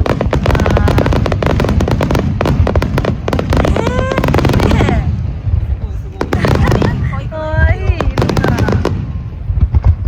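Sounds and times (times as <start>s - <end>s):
deep rumble: 0.0s - 10.0s
fireworks crackles and bangs: 0.0s - 10.0s.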